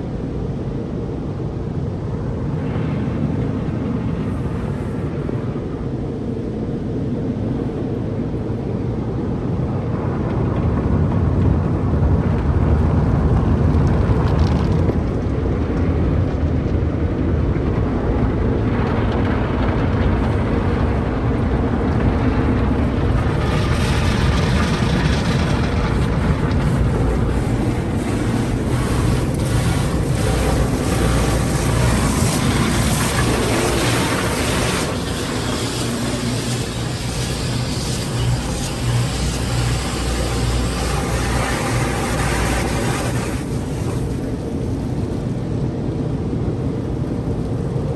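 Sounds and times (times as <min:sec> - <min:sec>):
car wash brushes and machinery rumble: 0:00.0 - 0:07.9, 0:08.8 - 0:47.9
water spraying: 0:23.0 - 0:45.3.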